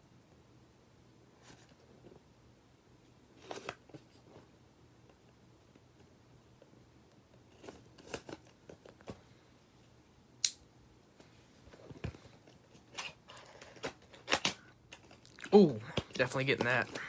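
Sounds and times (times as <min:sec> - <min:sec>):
plastic packaging clicks and scrapes: 0:03.4 - 0:04.3, 0:07.4 - 0:09.2, 0:11.8 - 0:17.0.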